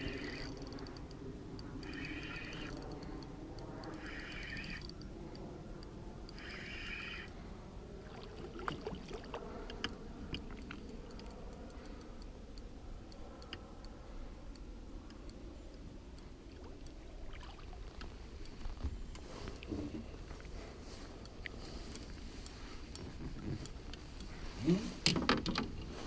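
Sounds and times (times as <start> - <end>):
fishing gear clicking: 0.0 - 5.4.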